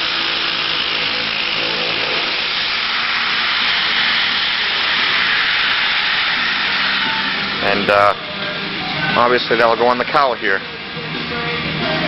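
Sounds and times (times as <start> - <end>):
power tool cutting sheet steel: 0.0 - 12.0.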